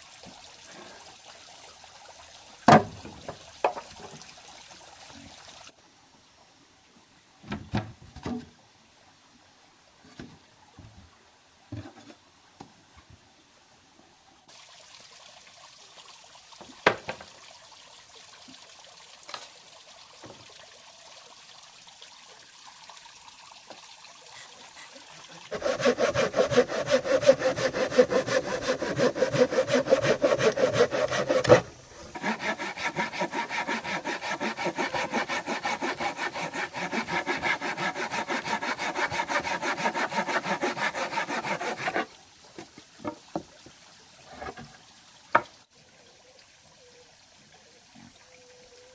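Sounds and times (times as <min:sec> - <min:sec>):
hand saw cutting wood: 0:25.5 - 0:42.1.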